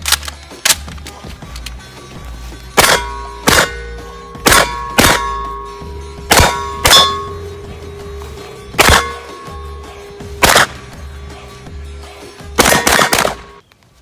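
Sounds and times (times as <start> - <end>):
metallic clangs of steel targets: 2.7 - 11.0, 12.6 - 13.6.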